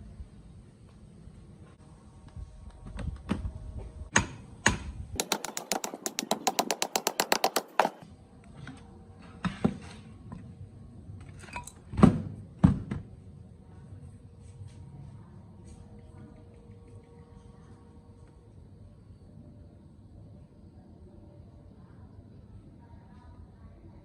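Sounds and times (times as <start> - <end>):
fast run of even clicks: 5.2 - 8.0
hand tools clicking on metal: 5.2 - 8.0.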